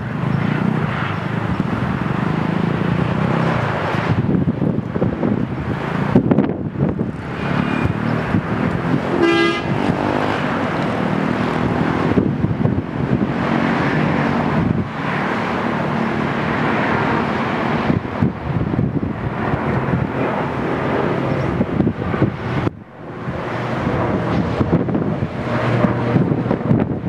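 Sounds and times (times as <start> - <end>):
turboprop engine running: 0.0 - 27.0
horn-like toot: 9.1 - 9.9.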